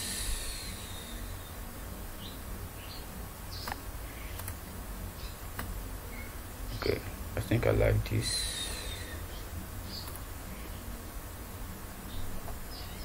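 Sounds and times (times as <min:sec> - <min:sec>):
small bird chirps: 0:00.0 - 0:01.6, 0:08.1 - 0:10.8, 0:12.1 - 0:13.0
faint room noise: 0:00.0 - 0:13.0.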